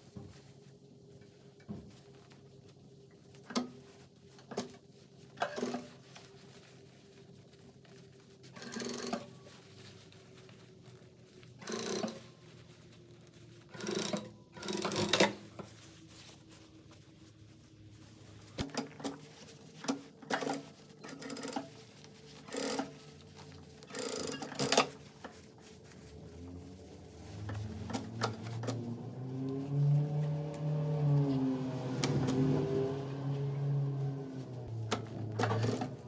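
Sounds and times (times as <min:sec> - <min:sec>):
sewing machine stitching: 0:08.5 - 0:09.3, 0:11.6 - 0:12.3, 0:13.7 - 0:15.4, 0:19.8 - 0:21.8, 0:22.4 - 0:23.1, 0:23.8 - 0:25.0, 0:34.7 - 0:36.0.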